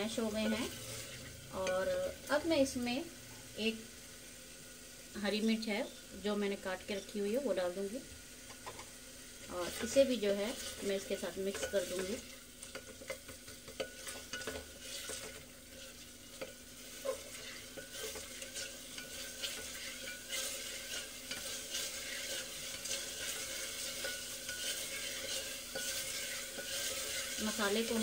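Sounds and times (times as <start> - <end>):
food sizzling in a pot: 0.0 - 28.0
spatula scraping a pot: 0.3 - 1.3, 9.6 - 28.0.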